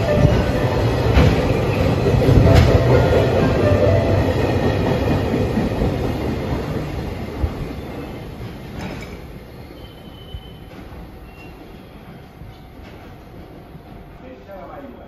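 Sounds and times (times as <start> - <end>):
train wagons rolling past: 0.0 - 15.0
faint high squeal: 9.6 - 12.7.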